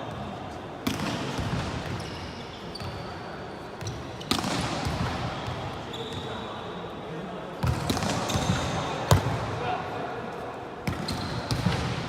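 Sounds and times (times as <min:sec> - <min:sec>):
sneaker squeaks on court floor: 0:00.1 - 0:06.8, 0:07.6 - 0:09.4, 0:10.8 - 0:12.0.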